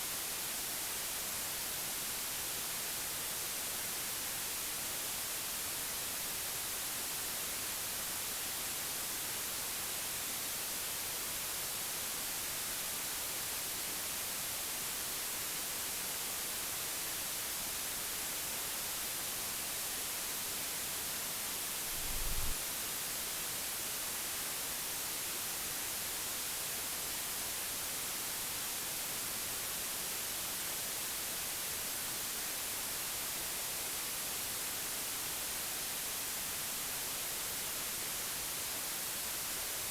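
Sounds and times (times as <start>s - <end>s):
steady white noise: 0.0s - 39.9s.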